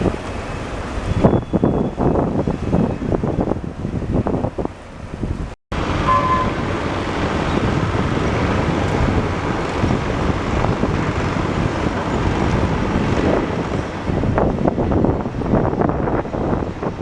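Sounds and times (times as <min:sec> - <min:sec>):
wind noise on microphone: 0:00.0 - 0:17.0
heavy machinery rumbling: 0:05.8 - 0:16.6.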